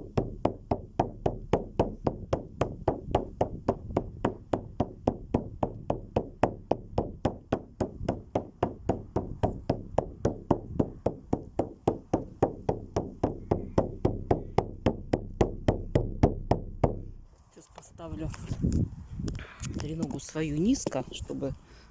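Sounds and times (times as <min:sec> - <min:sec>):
deep knocks: 0:00.0 - 0:17.3.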